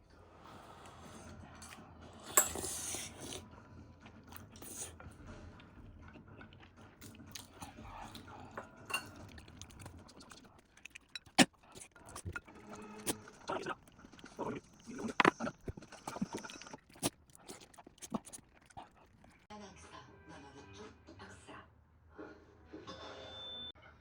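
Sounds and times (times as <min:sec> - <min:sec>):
cutlery and dishes clicking: 0:02.4 - 0:02.8, 0:08.5 - 0:09.4
person chewing and crunching: 0:04.0 - 0:19.4.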